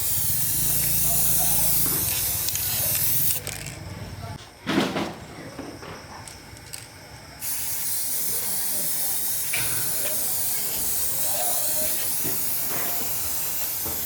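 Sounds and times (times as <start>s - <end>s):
loud spraying hiss: 0.0s - 3.5s, 7.4s - 14.0s.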